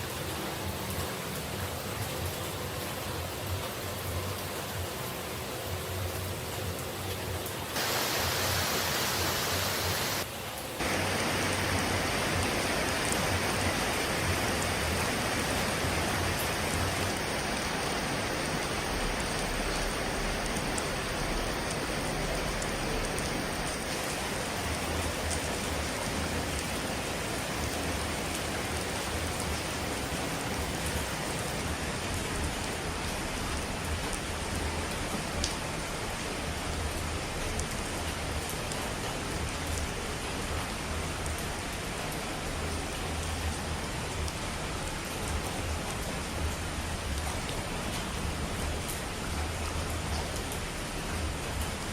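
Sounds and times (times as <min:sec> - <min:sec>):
falling water hiss: 0:07.8 - 0:29.6.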